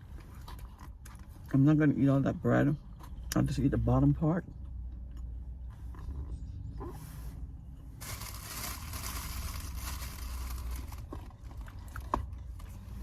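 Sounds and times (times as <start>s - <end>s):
low vehicle interior rumble: 0.0s - 13.0s
food packaging rustling and tearing: 8.0s - 12.8s.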